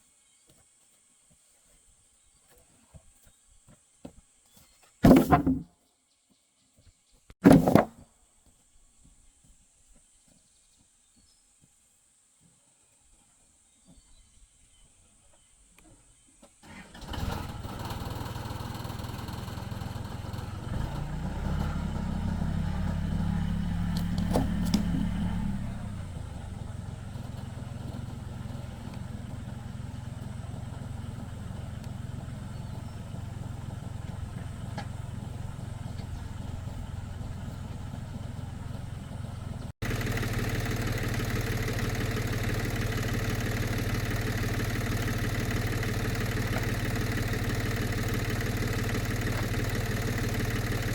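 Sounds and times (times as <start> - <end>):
tractor engine starting and running: 5.0 - 5.6, 7.4 - 7.9, 16.6 - 50.9.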